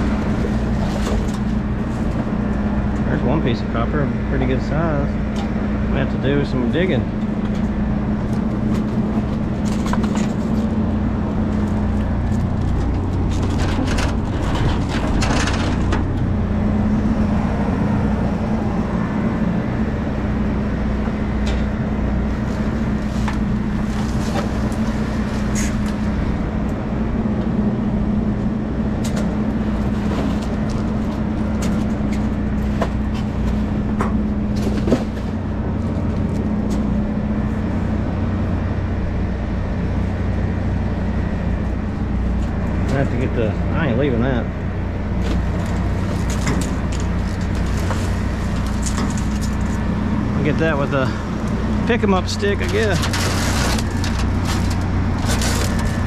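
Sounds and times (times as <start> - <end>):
vehicle engine idling: 0.0 - 56.0
junk knocking and rattling: 6.8 - 16.9, 45.1 - 56.0.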